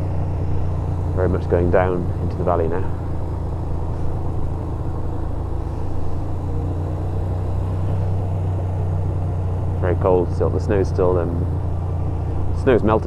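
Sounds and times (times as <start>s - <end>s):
motorcycle engine at low revs: 0.0s - 13.0s
wind and road noise: 0.0s - 13.0s.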